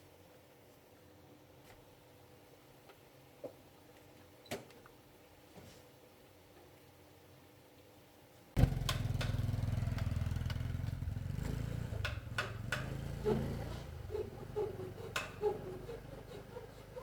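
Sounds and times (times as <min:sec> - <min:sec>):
small motorcycle engine running: 0:08.6 - 0:17.0
sharp clicks: 0:08.8 - 0:11.0.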